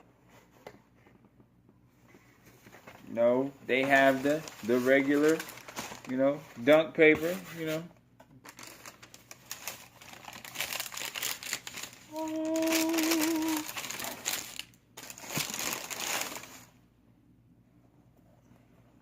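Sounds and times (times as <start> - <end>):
tissue paper crinkling: 3.8 - 7.8, 8.5 - 16.8
person humming: 12.1 - 13.8.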